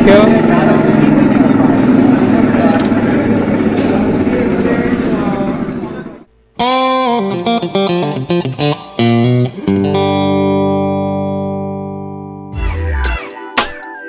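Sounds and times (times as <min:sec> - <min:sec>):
electric guitar music: 0:06.6 - 0:14.0.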